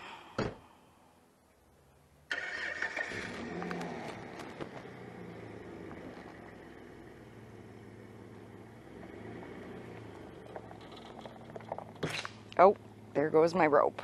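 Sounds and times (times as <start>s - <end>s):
engine running at low revs: 3.1s - 14.0s.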